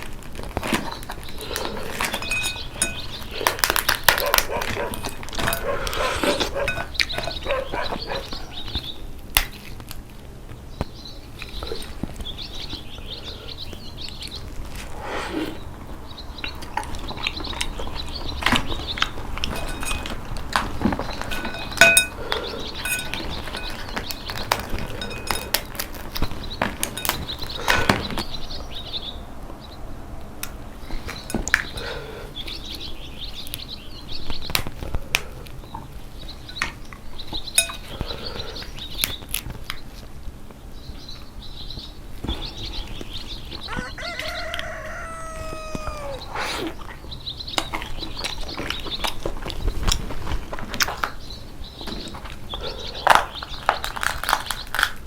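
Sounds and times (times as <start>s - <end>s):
sucking and chewing: 0.1s - 10.1s, 14.0s - 28.3s, 43.8s - 51.2s, 52.1s - 55.0s
crab shells cracking: 0.2s - 6.1s, 24.1s - 27.5s, 53.0s - 55.0s
clink against a dish: 2.1s - 3.2s, 6.6s - 7.3s, 19.4s - 20.2s, 21.3s - 22.2s, 22.8s - 23.9s, 24.9s - 25.6s, 37.6s - 37.9s.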